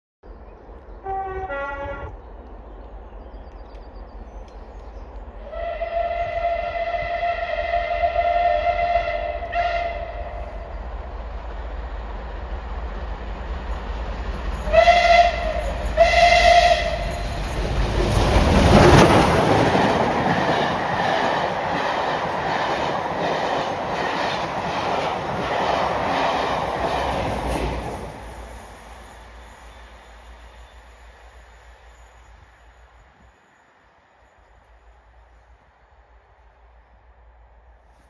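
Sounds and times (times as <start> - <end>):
train passing at speed: 0.2 - 38.0
steam whistle blasts: 1.0 - 2.1, 5.5 - 10.4, 14.6 - 17.2.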